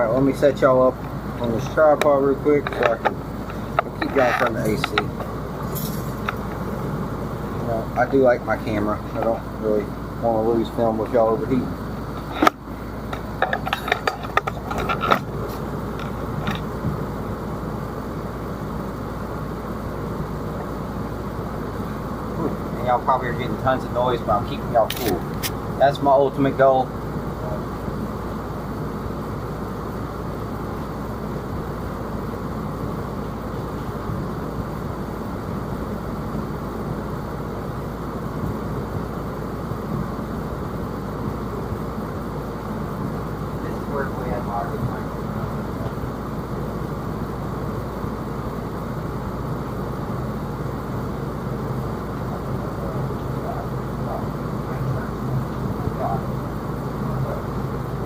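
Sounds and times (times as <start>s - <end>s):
air conditioner running: 0.0s - 58.0s.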